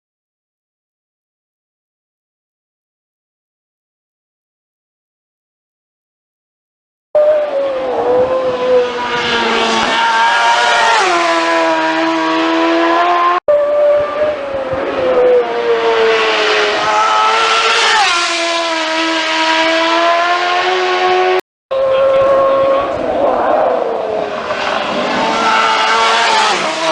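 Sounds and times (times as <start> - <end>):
racing motorcycles passing: 7.2 - 26.9.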